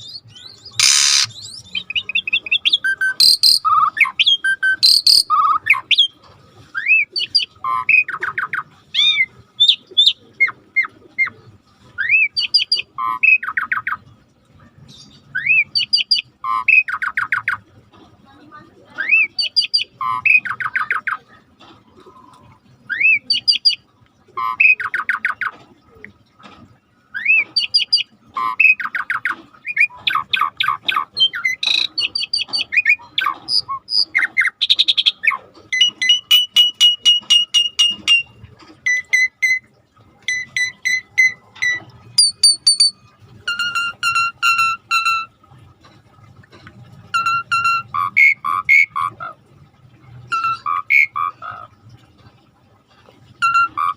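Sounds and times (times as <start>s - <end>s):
starling singing: 0.0s - 6.1s, 27.2s - 39.6s, 40.3s - 45.3s, 47.1s - 49.3s, 50.3s - 51.7s, 53.4s - 53.9s.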